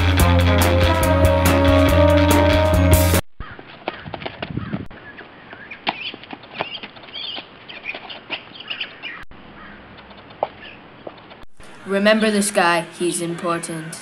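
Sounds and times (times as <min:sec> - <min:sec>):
small birds chirping: 0:03.4 - 0:12.7
sharp taps: 0:09.9 - 0:11.6.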